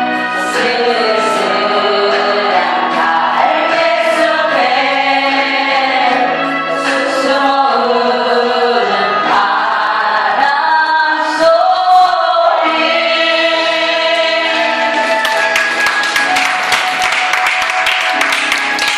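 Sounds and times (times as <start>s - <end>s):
choir-like singing ballad: 0.0s - 15.6s
people clapping: 14.9s - 18.9s.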